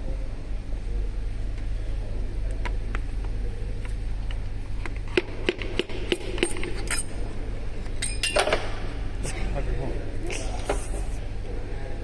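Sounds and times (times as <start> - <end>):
steady low hum: 0.0 - 12.0
metal engine parts clinking: 6.1 - 8.8.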